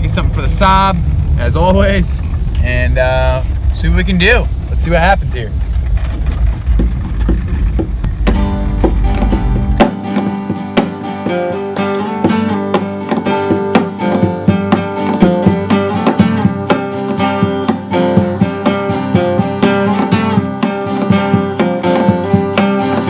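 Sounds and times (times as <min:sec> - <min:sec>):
fast acoustic guitar tune: 0:06.4 - 0:23.0.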